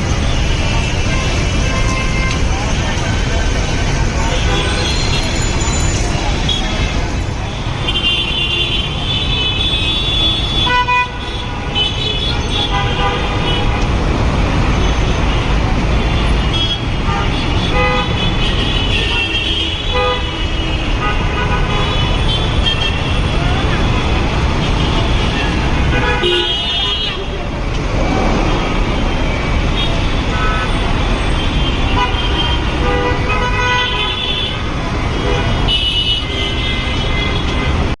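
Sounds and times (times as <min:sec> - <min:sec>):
road traffic rumble: 0:00.0 - 0:38.0
vehicle horns honking: 0:16.1 - 0:27.4, 0:29.7 - 0:37.8.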